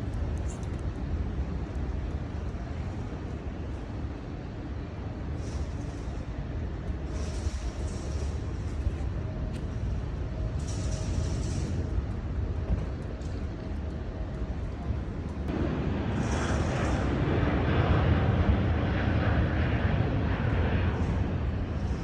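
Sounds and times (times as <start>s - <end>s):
jet engines rumbling: 0.0s - 22.0s
plane passing roar: 14.4s - 22.0s.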